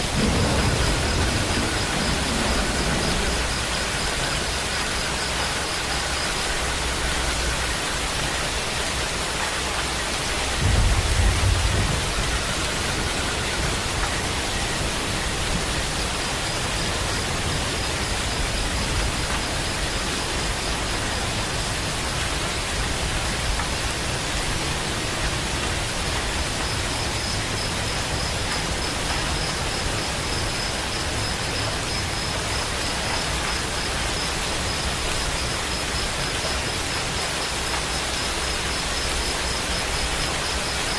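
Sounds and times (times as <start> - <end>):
low rumble of thunder: 0.0 - 5.6, 10.3 - 26.1
steady rain: 0.0 - 40.9.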